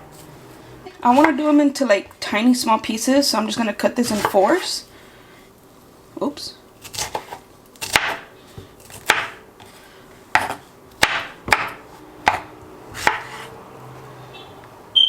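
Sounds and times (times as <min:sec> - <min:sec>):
knife chopping fruit: 0:01.1 - 0:01.4, 0:04.0 - 0:04.6, 0:06.8 - 0:09.4, 0:10.3 - 0:13.6.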